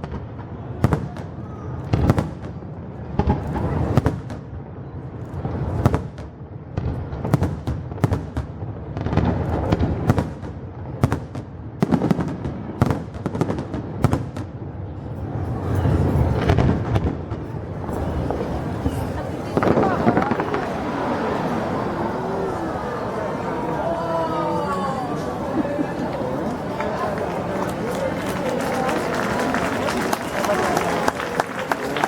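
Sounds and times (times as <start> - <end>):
fireworks bursting: 15.3 - 23.5.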